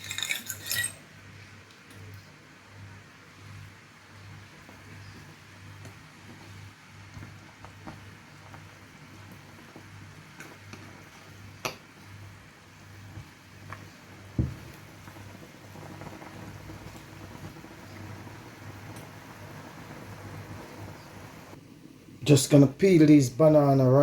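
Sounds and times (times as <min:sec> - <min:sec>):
pot simmering and bubbling: 0:00.0 - 0:23.1
thump: 0:14.4 - 0:14.7.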